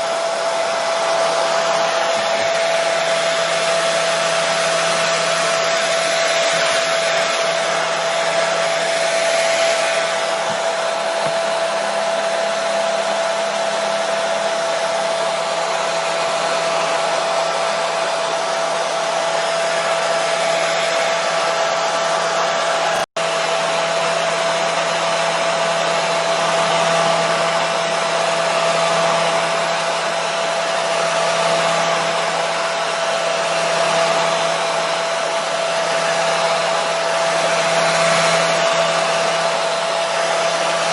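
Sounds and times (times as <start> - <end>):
hair dryer blowing air: 0.0 - 40.9.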